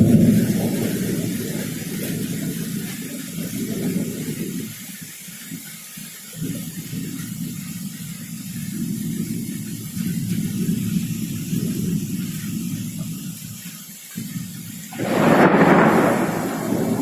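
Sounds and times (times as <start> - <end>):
rolling thunder: 0.0 - 4.6, 14.9 - 17.0
heavy rain hissing: 0.0 - 17.0.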